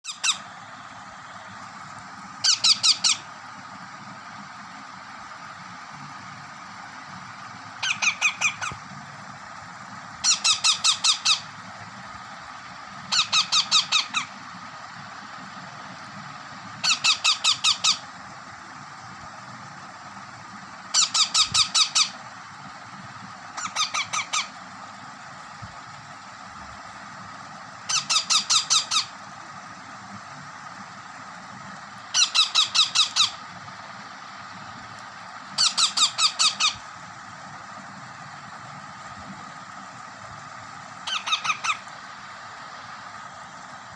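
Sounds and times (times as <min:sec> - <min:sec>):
baby parrot squeaky calls: 0:00.0 - 0:00.5, 0:02.4 - 0:03.3, 0:07.8 - 0:08.8, 0:10.2 - 0:11.5, 0:13.1 - 0:14.3, 0:16.8 - 0:18.0, 0:20.9 - 0:22.2, 0:23.6 - 0:24.6, 0:27.9 - 0:29.1, 0:32.1 - 0:33.4, 0:35.6 - 0:36.8, 0:41.0 - 0:41.9.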